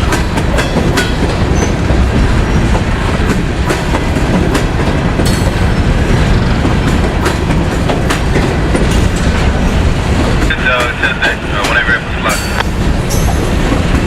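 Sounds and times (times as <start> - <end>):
wheels clacking over rail joints: 0.0 - 11.0
freight train rumbling past: 0.0 - 14.0.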